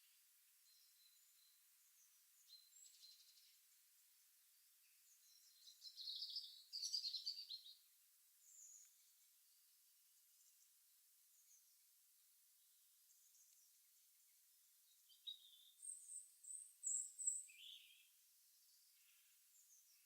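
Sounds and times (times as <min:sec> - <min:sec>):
birds chirping: 0:04.5 - 0:09.7, 0:14.9 - 0:20.0.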